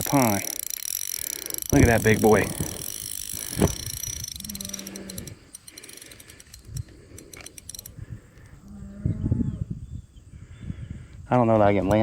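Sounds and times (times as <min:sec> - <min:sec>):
fishing reel ratchet clicking: 0:00.0 - 0:08.4.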